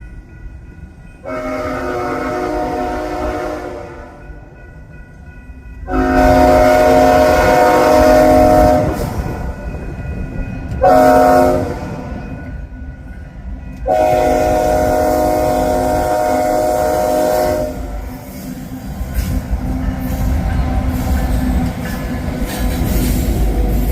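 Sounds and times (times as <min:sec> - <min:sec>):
train rumbling: 0:00.0 - 0:23.9
locomotive air horn: 0:01.2 - 0:04.2, 0:05.9 - 0:09.4, 0:10.8 - 0:12.1, 0:13.8 - 0:18.3.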